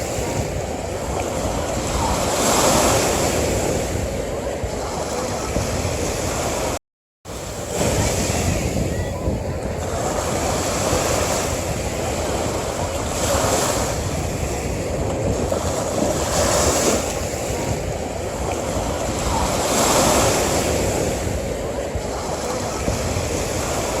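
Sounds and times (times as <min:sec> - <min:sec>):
ocean waves on beach: 0:00.0 - 0:24.0.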